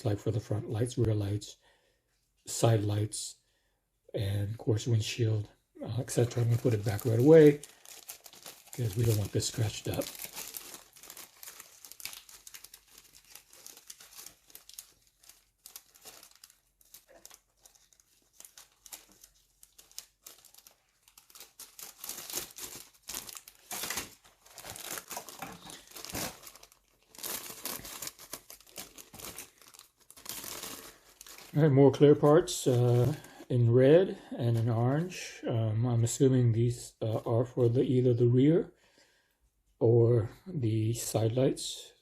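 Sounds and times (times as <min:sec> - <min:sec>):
plastic bags crinkling: 0:05.9 - 0:31.7.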